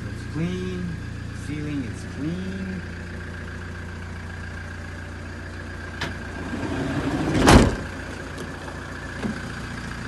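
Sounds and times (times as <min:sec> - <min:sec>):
diesel engine idling: 0:00.0 - 0:10.0
sliding door rolling and slamming: 0:06.0 - 0:07.9.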